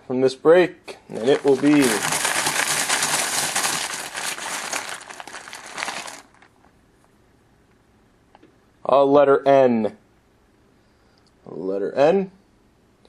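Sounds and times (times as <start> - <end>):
small hard pieces rattling: 1.2 - 6.5.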